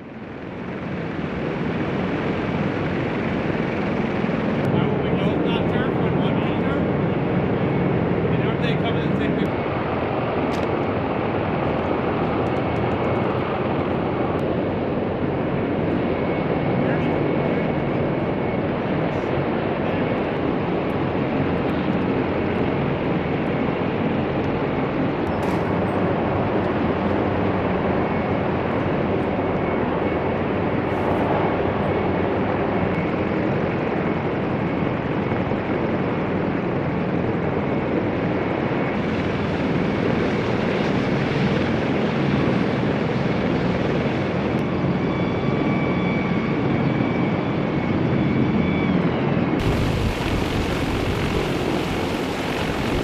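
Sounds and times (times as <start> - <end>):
helicopter rotor and turbine: 0.0 - 53.0
faint high whine: 49.6 - 53.0.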